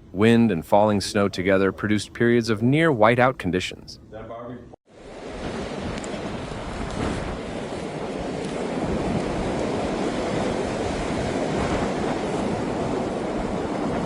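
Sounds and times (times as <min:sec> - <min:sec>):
blizzard wind blowing hard: 0:04.9 - 0:14.0.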